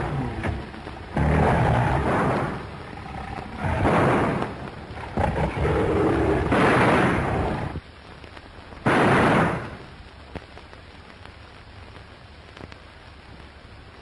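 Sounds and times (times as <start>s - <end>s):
lion snarling and roaring: 0.0s - 7.8s.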